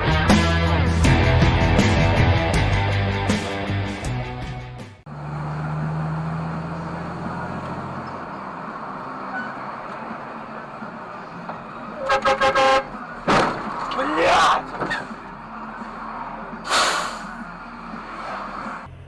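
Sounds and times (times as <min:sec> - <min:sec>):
road and tyre noise: 0:00.0 - 0:19.0
car engine hum: 0:05.0 - 0:19.0.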